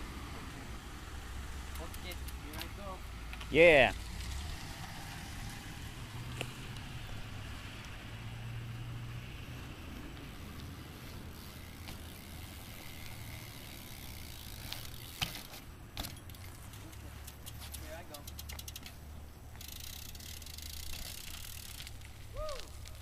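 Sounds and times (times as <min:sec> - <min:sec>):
bike rolling on asphalt: 0:00.0 - 0:23.0
bike hub ticking: 0:01.7 - 0:03.4, 0:10.1 - 0:23.0.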